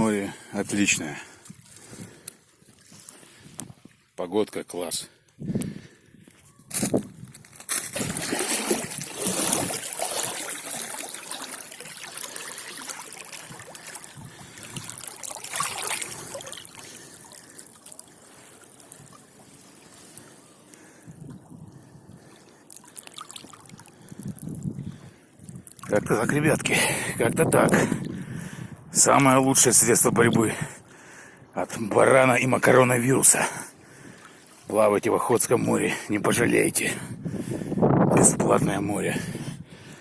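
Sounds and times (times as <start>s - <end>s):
sea water sloshing and splashing: 7.5s - 26.5s.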